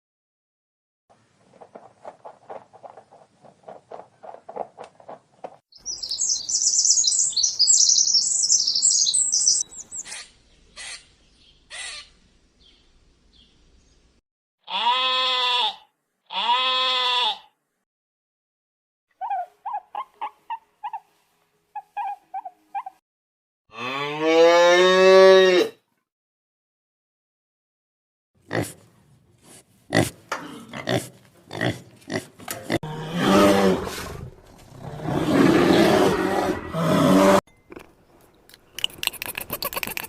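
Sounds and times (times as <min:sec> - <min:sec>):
high bird twittering: 0:05.8 - 0:13.5
short chirping calls: 0:05.8 - 0:13.5
long bleats: 0:14.6 - 0:17.6.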